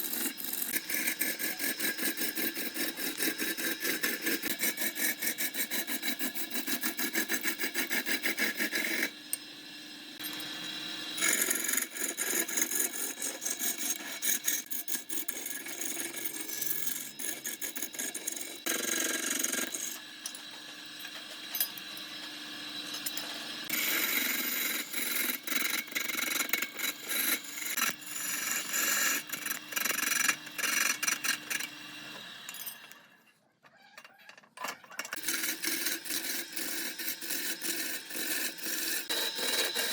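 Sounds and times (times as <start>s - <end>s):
tool rasping wood: 0.0s - 9.2s, 11.1s - 20.1s, 23.4s - 32.2s, 35.2s - 39.9s.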